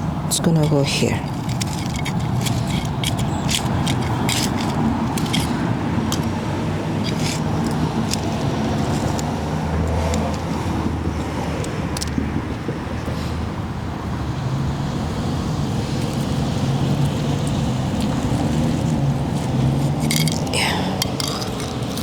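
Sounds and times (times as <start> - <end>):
low rumble of road traffic: 0.0 - 22.0
small clicks and scrapes: 0.3 - 12.2, 15.9 - 22.0.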